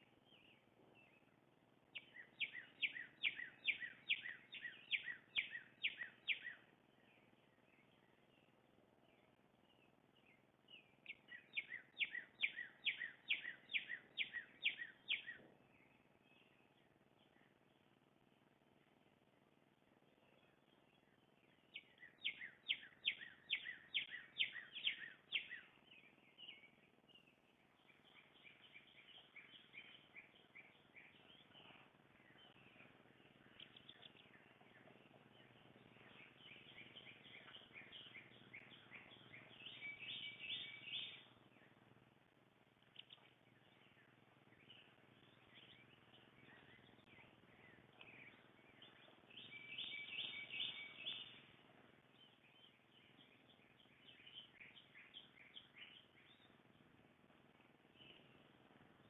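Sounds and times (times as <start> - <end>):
birds chirping and twittering: 0.0 - 59.0
down-slurred whistled bird notes: 2.0 - 8.0, 10.7 - 16.6, 21.7 - 41.3, 42.9 - 51.5, 52.2 - 56.5.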